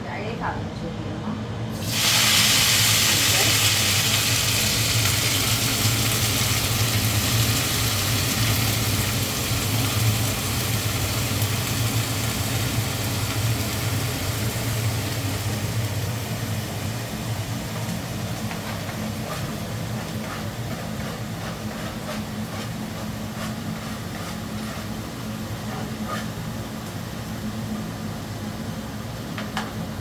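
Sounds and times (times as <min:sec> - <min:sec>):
exhaust fan humming: 0:00.0 - 0:30.0
food sizzling in hot oil: 0:01.7 - 0:20.8.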